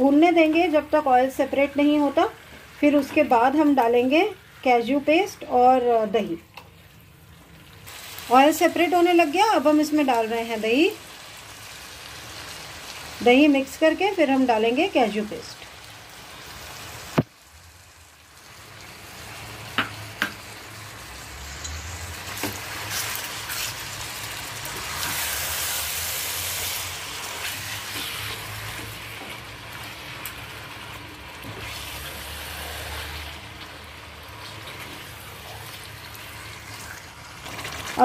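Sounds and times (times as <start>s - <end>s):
food sizzling in oil: 0.0s - 38.0s.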